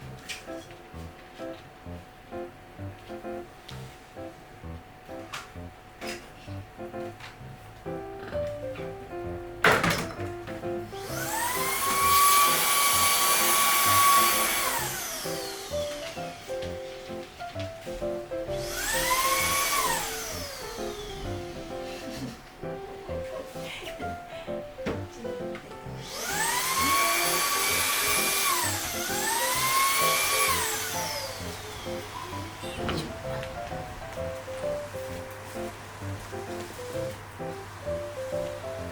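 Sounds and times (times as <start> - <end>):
background music: 0.0 - 38.9
vacuum motor whine: 10.9 - 16.2, 18.5 - 22.4, 25.9 - 34.0.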